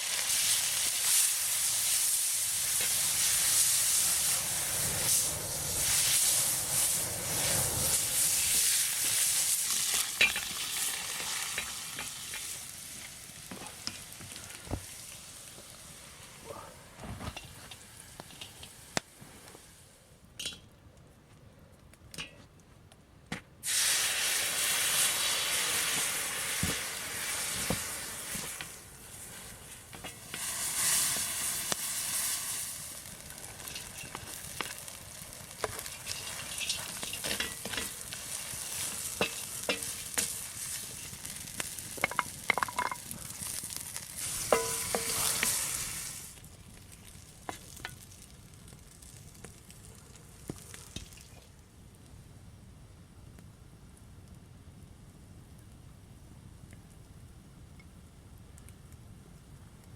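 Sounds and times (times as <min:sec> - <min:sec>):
food sizzling in pan: 0:00.0 - 0:16.4, 0:23.6 - 0:49.6
utensil stirring clicks and scrapes: 0:35.5 - 0:38.1.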